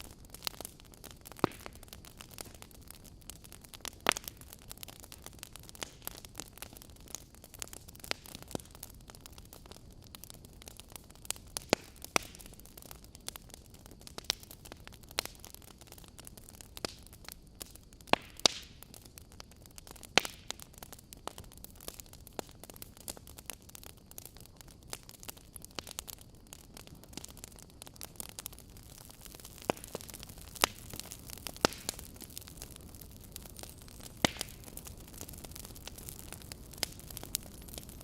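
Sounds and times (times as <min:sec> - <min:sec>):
wood fire crackling and popping: 0:00.0 - 0:38.0
low hiss: 0:24.4 - 0:38.0.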